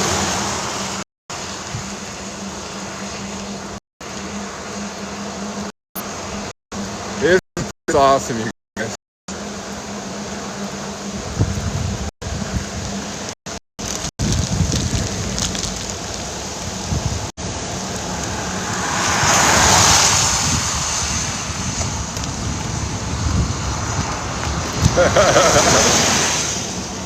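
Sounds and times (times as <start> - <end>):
rain: 0.0 - 3.8, 12.3 - 27.0
wind buffeting microphone: 11.1 - 13.2, 13.8 - 27.0.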